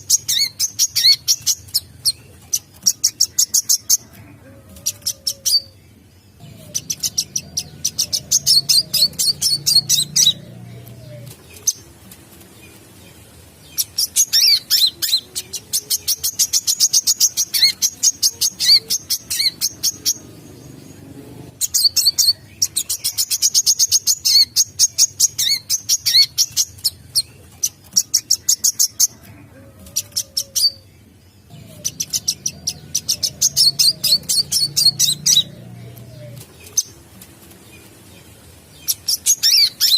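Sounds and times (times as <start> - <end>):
bird chirping trills: 0.0 - 39.9.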